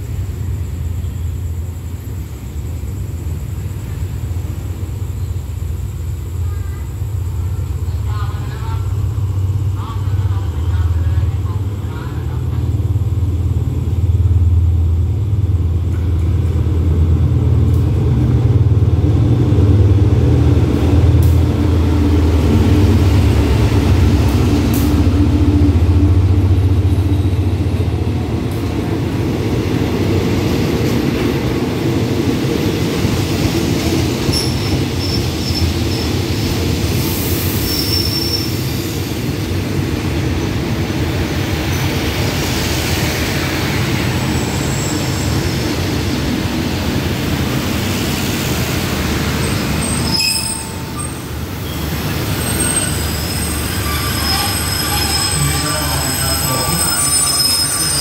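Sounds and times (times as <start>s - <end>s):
diesel locomotive engine rumble: 0.0s - 58.0s
train coaches rolling on rails: 0.0s - 58.0s
faint metal squeals: 49.8s - 51.8s.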